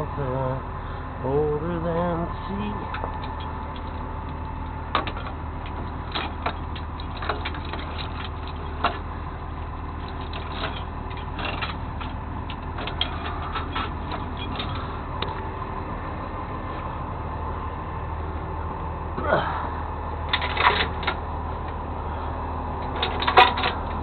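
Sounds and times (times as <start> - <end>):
vehicle engine droning: 0.0 - 24.0
sharp clicks and rattles: 2.7 - 15.4, 20.3 - 21.8, 22.8 - 24.0.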